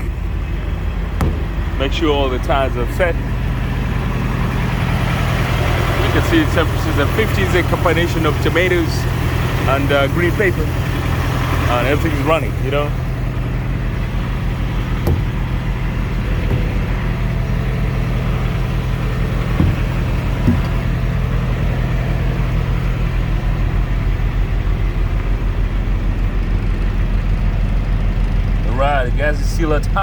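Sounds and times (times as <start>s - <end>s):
diesel engine idling: 0.0s - 30.0s
brief knocks: 1.2s - 1.8s, 15.0s - 21.0s.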